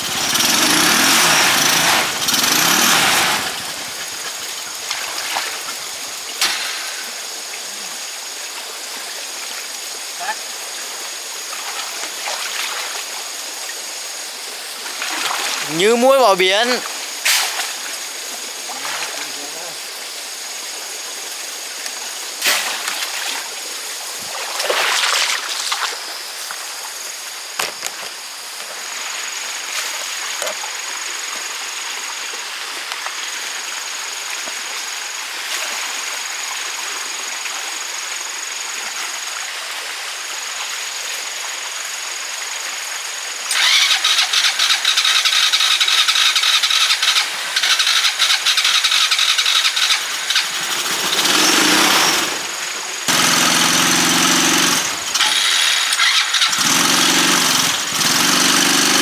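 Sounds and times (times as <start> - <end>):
electric motor whining: 0.0 - 6.3, 43.5 - 59.0
loud rapid rattling buzz: 0.0 - 7.3, 43.5 - 59.0
rushing stream water: 0.0 - 27.6.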